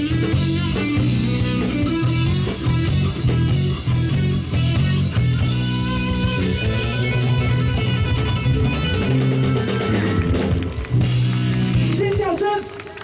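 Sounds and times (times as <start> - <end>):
distorted electric guitar chords: 0.0 - 12.1
bass guitar: 0.0 - 12.4
drums: 0.0 - 13.0.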